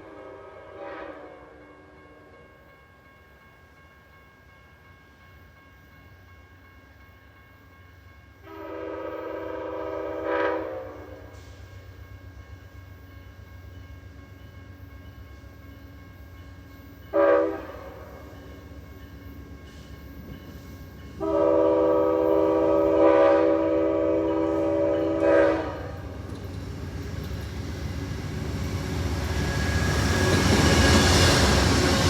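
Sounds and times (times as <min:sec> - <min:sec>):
locomotive air horn: 0:00.0 - 0:01.5, 0:08.5 - 0:11.5, 0:17.1 - 0:18.1, 0:21.2 - 0:26.0
train rumble: 0:04.5 - 0:32.0.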